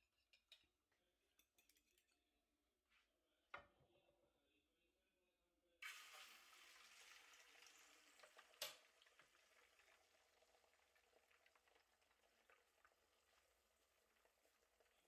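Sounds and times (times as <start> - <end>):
food sizzling in a pan: 5.8 - 15.0.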